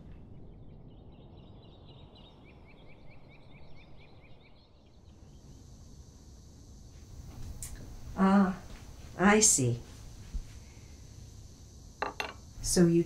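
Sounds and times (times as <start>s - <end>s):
bird chirping: 0.5s - 5.6s.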